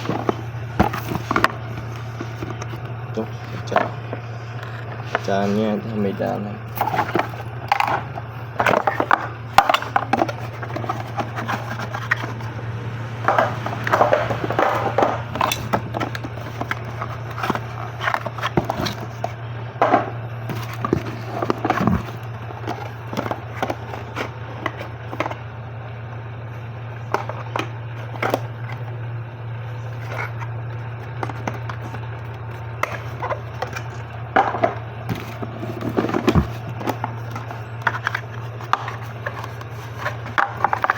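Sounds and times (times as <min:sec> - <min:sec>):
scraping and knocks: 0:00.0 - 0:05.7, 0:06.7 - 0:25.4, 0:32.8 - 0:40.9
packaging rustling: 0:00.0 - 0:12.5, 0:13.6 - 0:19.4
steady low hum: 0:00.0 - 0:40.9.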